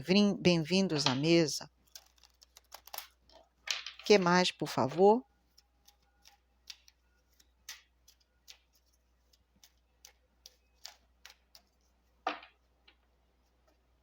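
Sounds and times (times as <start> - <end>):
cards being shuffled: 0.9 - 3.1, 4.9 - 13.0.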